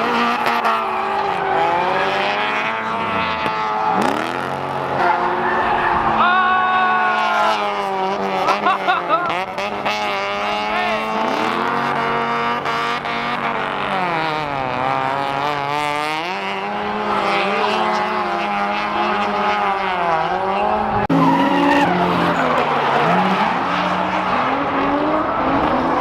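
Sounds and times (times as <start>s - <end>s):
car engines revving hard: 0.0s - 26.0s
tyre squeal: 21.1s - 26.0s.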